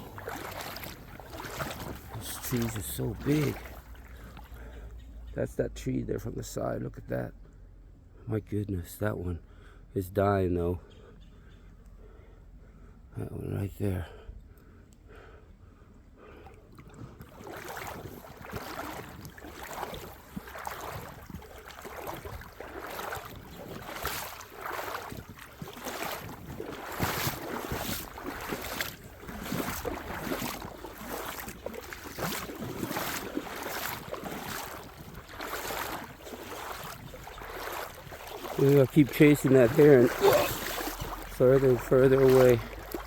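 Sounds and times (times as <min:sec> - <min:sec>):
footsteps crunching on gravel: 0:00.0 - 0:04.4, 0:17.6 - 0:43.0.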